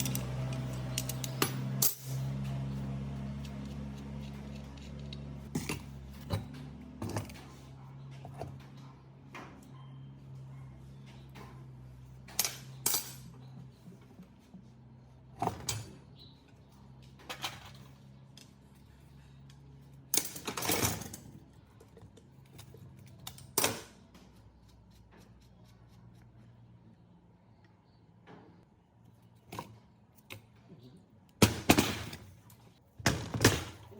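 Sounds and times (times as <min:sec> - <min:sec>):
metal parts clinking: 0:00.0 - 0:02.3, 0:12.3 - 0:13.3, 0:20.1 - 0:21.4.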